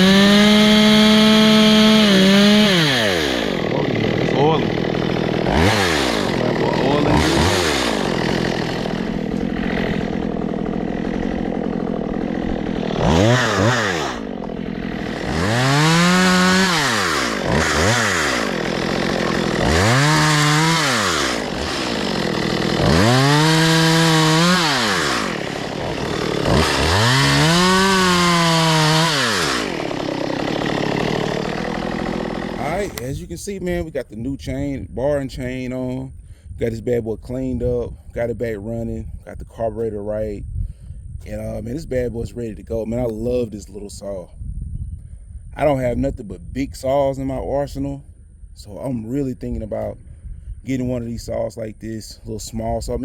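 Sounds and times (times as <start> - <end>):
chainsaw revving and idling: 0.0 - 33.1.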